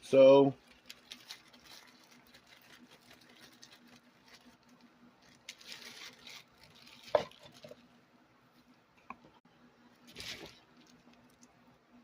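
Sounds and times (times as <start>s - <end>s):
takeout packaging rustling: 0.6s - 7.9s, 10.0s - 11.4s.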